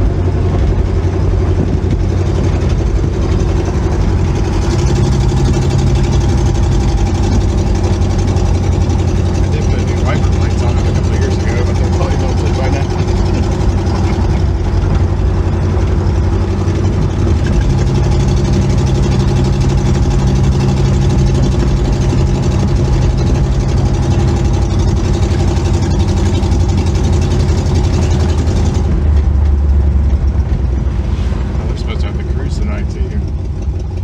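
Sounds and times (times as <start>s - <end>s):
car engine running while driving: 0.0s - 34.0s.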